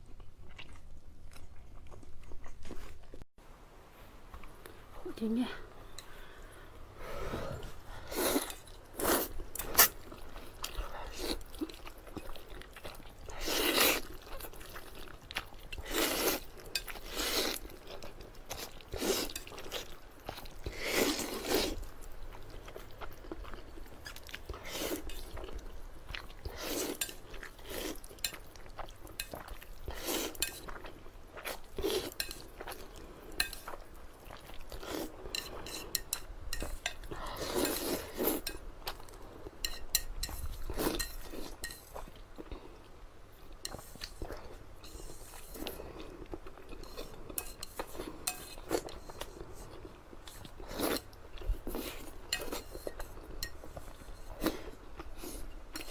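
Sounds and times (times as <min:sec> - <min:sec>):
chewing noodles: 0:00.0 - 0:03.2, 0:07.5 - 0:42.8.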